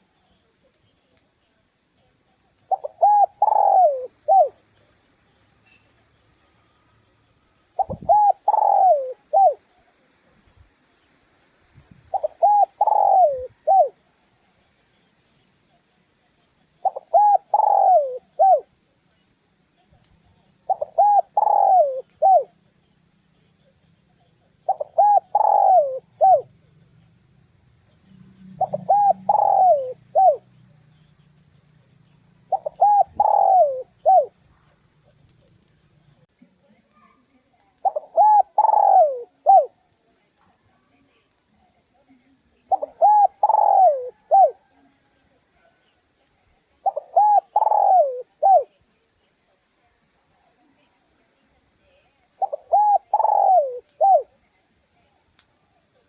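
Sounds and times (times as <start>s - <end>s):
dove cooing: 2.7s - 4.6s, 7.7s - 9.8s, 12.1s - 14.0s, 16.8s - 18.7s, 20.6s - 22.5s, 24.4s - 26.6s, 28.0s - 31.0s, 32.4s - 34.4s, 37.8s - 39.8s, 42.6s - 45.1s, 46.8s - 48.8s, 52.4s - 54.4s.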